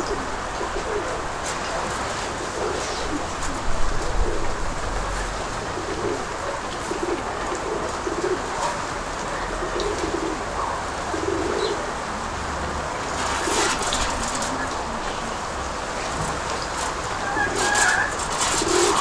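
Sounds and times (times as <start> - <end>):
pigeons cooing: 0.0 - 19.0
steady wind noise: 11.9 - 19.0
rustling: 12.7 - 19.0.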